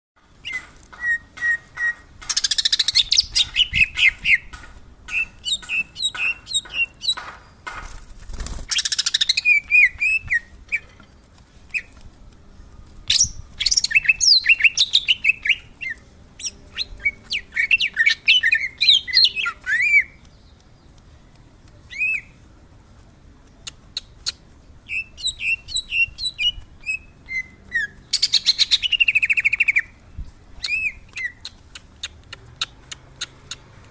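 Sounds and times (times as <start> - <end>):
bird singing whistled notes: 0.3 - 4.5, 5.1 - 7.2, 8.7 - 10.9, 13.0 - 20.3, 21.9 - 22.4, 24.2 - 30.0, 30.6 - 31.6.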